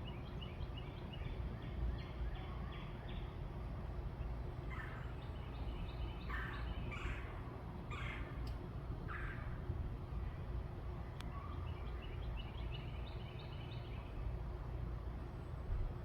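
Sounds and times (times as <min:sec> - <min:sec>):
crow cawing: 0:06.3 - 0:08.4, 0:09.1 - 0:09.6.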